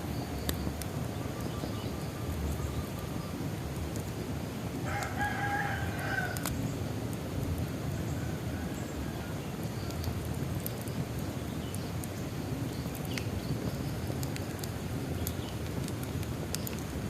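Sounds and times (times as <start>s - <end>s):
bonfire crackling: 0.0s - 17.0s
rooster crowing: 4.8s - 6.5s.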